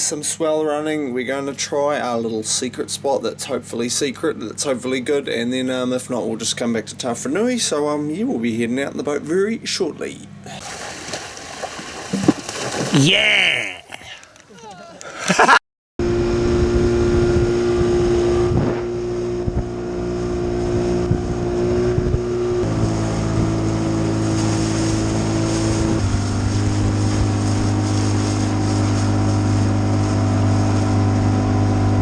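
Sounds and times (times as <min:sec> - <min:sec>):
outboard motor running: 0:16.0 - 0:32.0.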